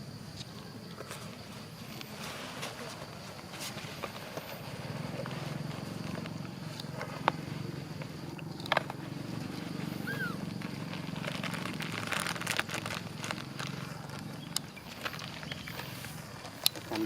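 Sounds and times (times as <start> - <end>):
sharp clicks and crackles: 8.0 - 17.0.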